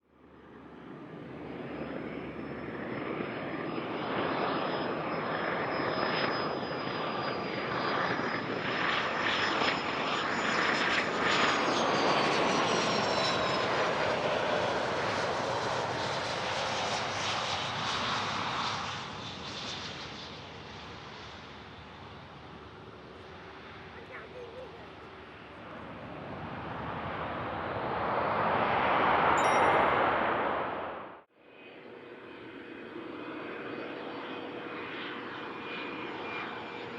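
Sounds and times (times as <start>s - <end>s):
jet engine roar: 0.6s - 36.9s
high jet whine: 29.2s - 31.3s.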